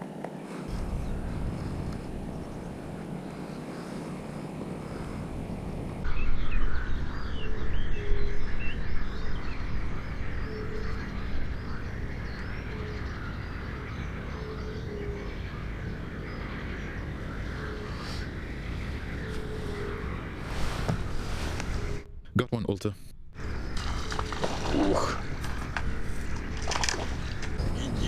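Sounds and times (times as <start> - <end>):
low rumble: 0.7 - 4.1
small birds chirping: 23.4 - 28.0.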